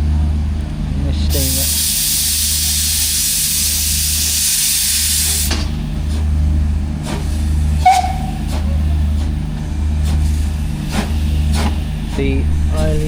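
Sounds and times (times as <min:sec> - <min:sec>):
steady low throb: 0:00.0 - 0:01.4, 0:05.8 - 0:13.0
loud hiss of steam: 0:01.3 - 0:05.8
brief high tone: 0:07.8 - 0:08.4.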